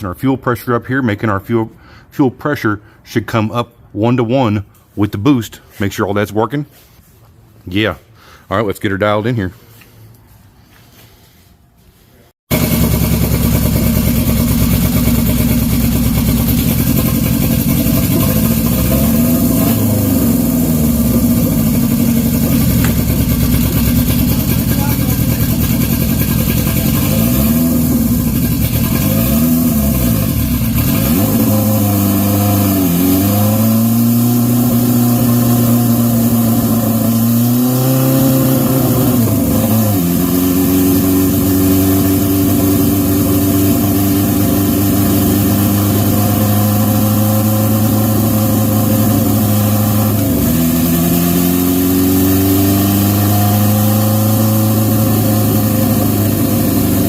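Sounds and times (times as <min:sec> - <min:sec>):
motorcycle engine revving: 0:12.5 - 0:57.0.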